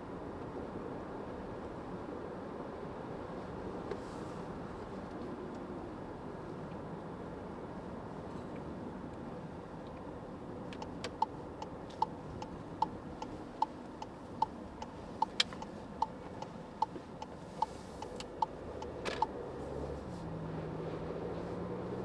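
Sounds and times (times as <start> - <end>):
road and engine noise: 0.0 - 22.0
turn signal indicator ticking: 10.6 - 19.4.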